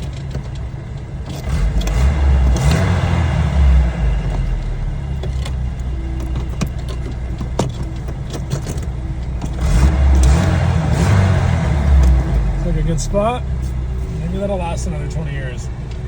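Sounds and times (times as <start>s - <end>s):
accelerator pedal clicks and knocks: 0.0s - 2.9s, 4.2s - 12.5s
steady low rumble: 0.0s - 16.0s.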